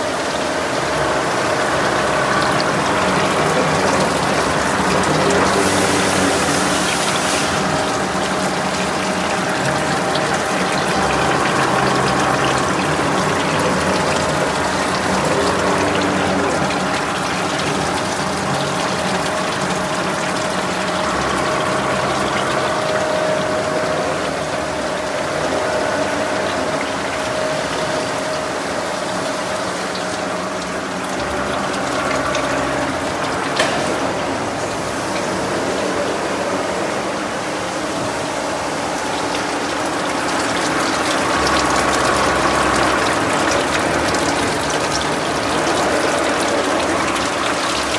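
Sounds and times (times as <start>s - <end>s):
gear machine whirring: 0.0s - 47.9s.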